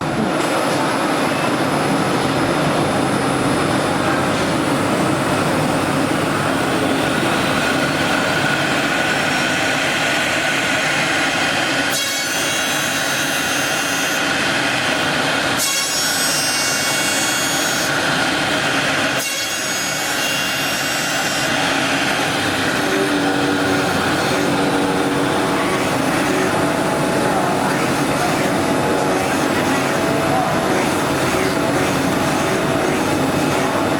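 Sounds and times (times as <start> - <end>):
higher-pitched machine whine: 0.0 - 33.9.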